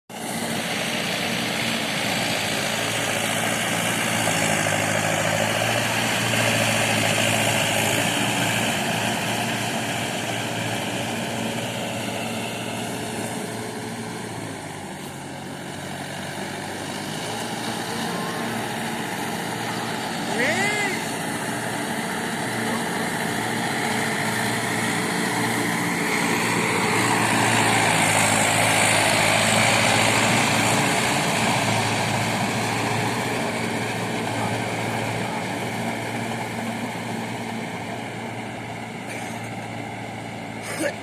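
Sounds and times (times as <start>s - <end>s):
tractor engine running: 0.1s - 41.0s.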